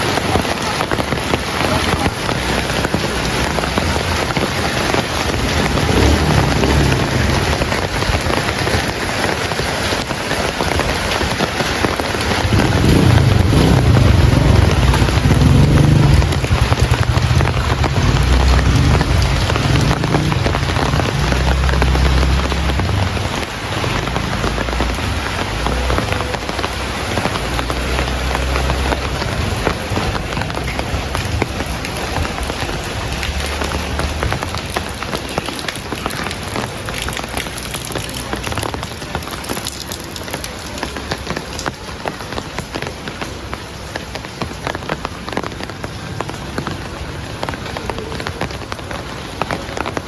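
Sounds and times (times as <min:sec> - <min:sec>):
heavy rain: 0:00.0 - 0:50.0
low rumble: 0:12.5 - 0:34.5.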